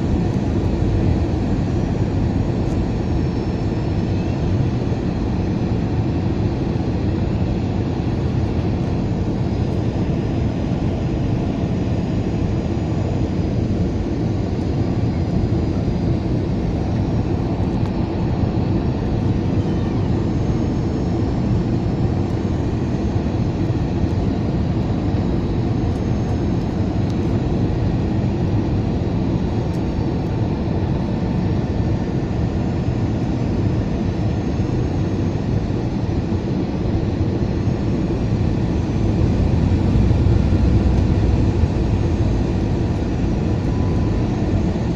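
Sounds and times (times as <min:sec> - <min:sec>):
jet engines rumbling: 0:00.0 - 0:44.9
air rushing past fuselage: 0:38.8 - 0:43.6.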